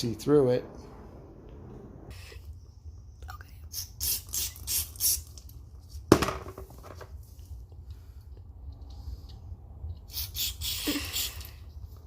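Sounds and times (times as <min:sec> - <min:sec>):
steady low hum: 0:00.0 - 0:04.0.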